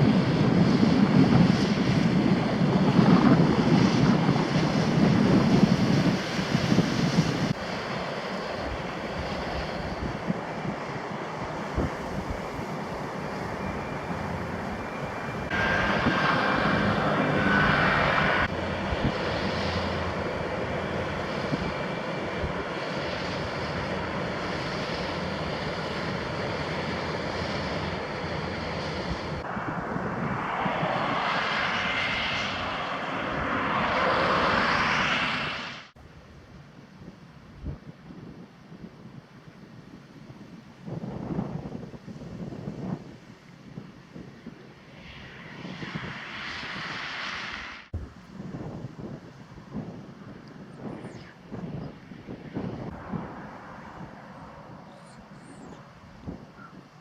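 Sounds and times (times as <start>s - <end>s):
wind buffeting microphone: 0.0s - 35.6s, 36.2s - 57.0s
ship diesel engine droning: 12.7s - 22.1s.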